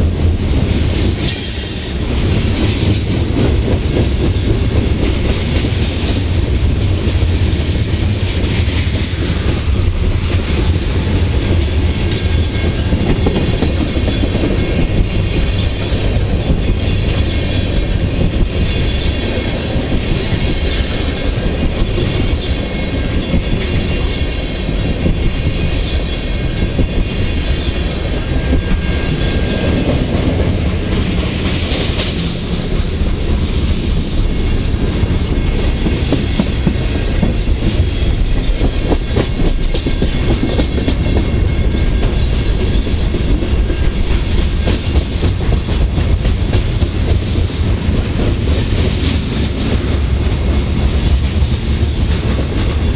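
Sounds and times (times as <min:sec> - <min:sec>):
freight train rumble: 0:00.0 - 0:52.9
wheels clicking over rail joints: 0:00.2 - 0:52.9
faint high wheel squeal: 0:24.0 - 0:30.5.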